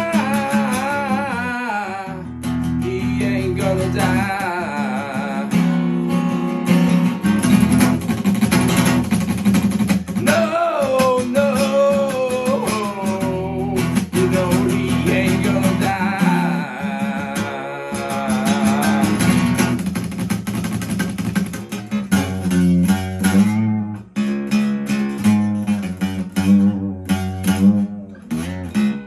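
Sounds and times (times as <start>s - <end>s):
bass guitar: 0.0s - 4.5s, 5.6s - 10.6s, 12.5s - 16.8s, 18.2s - 29.0s
rhythm guitar: 0.0s - 29.0s
drums: 18.6s - 21.7s.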